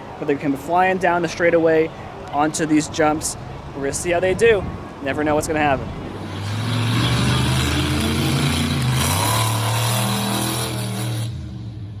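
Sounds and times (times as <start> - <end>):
truck engine revving hard: 6.1 - 12.0.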